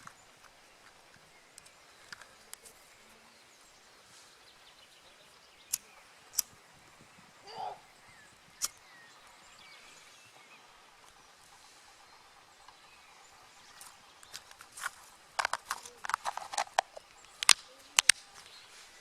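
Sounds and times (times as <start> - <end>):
faint small clicks: 0.0 - 2.9, 5.7 - 6.6, 13.8 - 18.6
dry wood snapping: 13.8 - 18.5
rustling scrape: 14.4 - 17.0.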